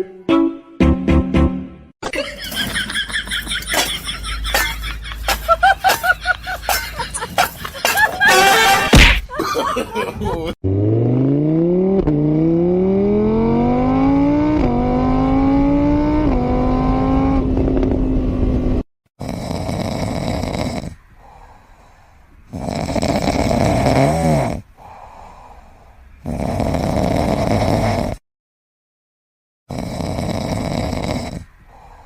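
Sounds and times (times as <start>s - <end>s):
engine revving through gears: 10.6s - 18.8s
loud rhythmic snoring: 19.2s - 21.4s, 22.5s - 25.6s, 26.2s - 28.2s, 29.7s - 32.0s.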